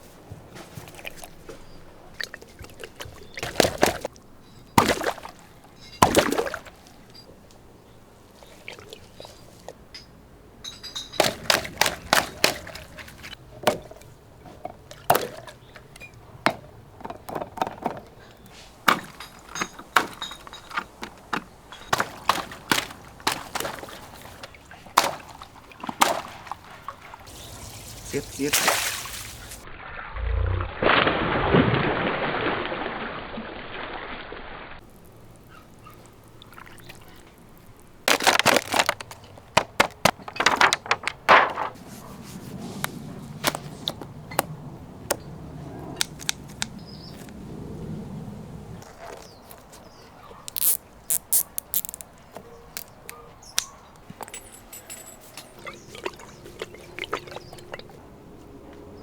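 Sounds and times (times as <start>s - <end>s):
water pouring and trickling: 18.7s - 29.7s, 31.4s - 39.5s, 50.5s - 52.2s, 54.2s - 59.0s
squelchy handling of toys: 38.1s - 44.1s, 48.8s - 54.2s.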